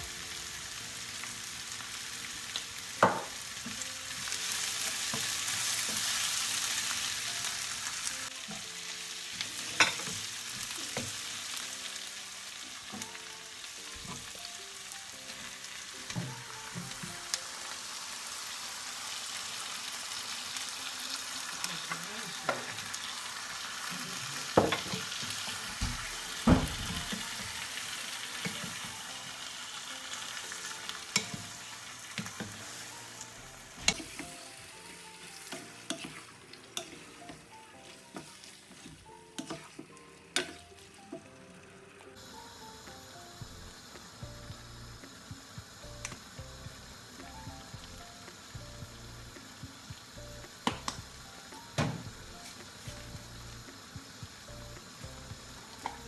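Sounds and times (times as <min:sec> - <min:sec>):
vegetables sizzling in a frying pan: 0:00.0 - 0:56.0
wooden spatula knocking on pan: 0:03.0 - 0:03.4.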